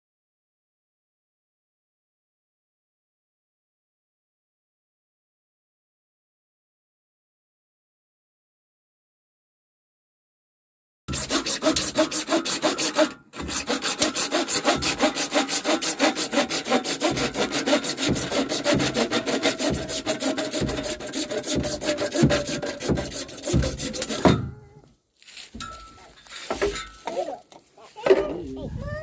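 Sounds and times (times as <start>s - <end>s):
hand saw cutting: 11.1s - 24.8s, 26.2s - 27.5s.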